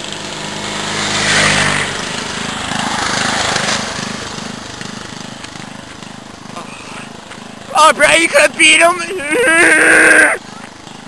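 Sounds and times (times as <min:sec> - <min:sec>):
off-road vehicle engines racing: 0:00.0 - 0:11.0.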